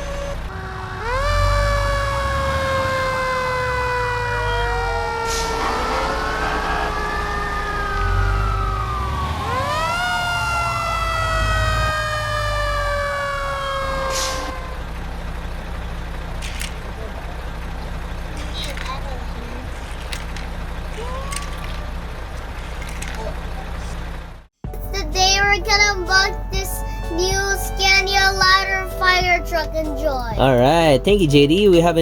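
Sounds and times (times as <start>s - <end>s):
second siren: 0.0s - 16.7s, 19.6s - 24.0s
fire engine siren wailing: 0.0s - 24.5s
low engine rumble: 0.0s - 32.0s.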